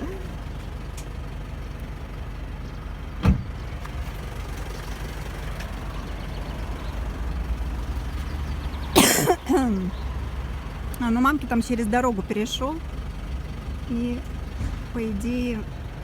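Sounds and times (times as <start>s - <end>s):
diesel car engine idling: 0.0s - 16.0s.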